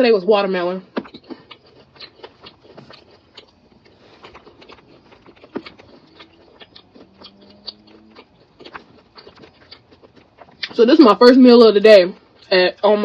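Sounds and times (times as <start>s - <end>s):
chewing mouth clicks and smacks: 0.9s - 10.8s.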